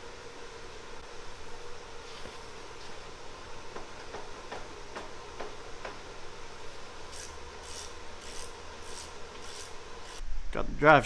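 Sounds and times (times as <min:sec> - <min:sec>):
raspy tool strokes: 0:06.6 - 0:10.2.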